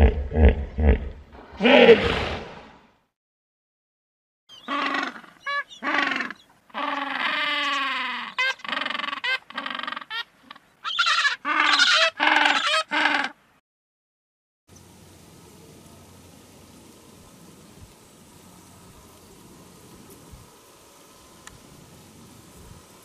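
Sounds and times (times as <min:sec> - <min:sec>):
penguins calling: 0:10.9 - 0:13.4.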